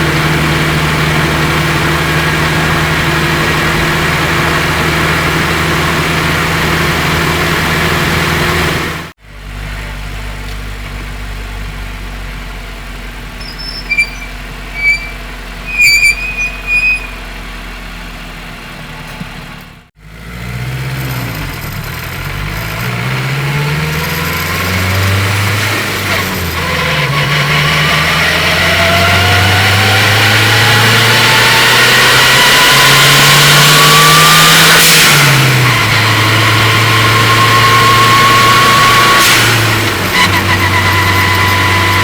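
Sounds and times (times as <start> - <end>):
thin rising whine: 13.4 - 17.2
short high squeaks: 13.4 - 17.4.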